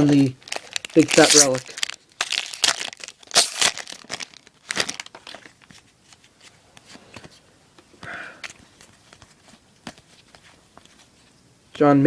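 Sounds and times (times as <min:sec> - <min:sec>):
wrapper crinkling and tearing: 0:00.0 - 0:05.8.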